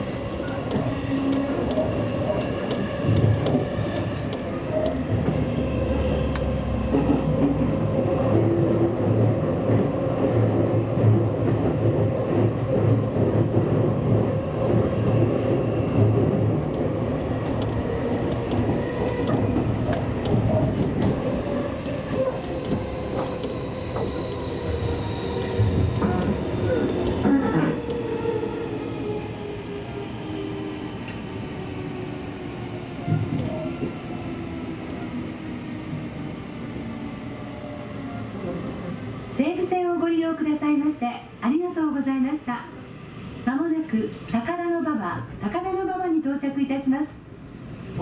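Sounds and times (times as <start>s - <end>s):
train wheels rumbling on rails: 0.0s - 37.4s.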